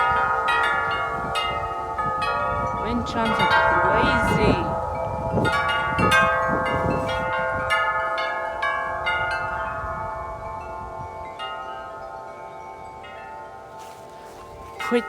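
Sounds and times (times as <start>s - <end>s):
low rumble of wind: 0.0s - 15.0s
wind chimes ringing: 0.0s - 15.0s.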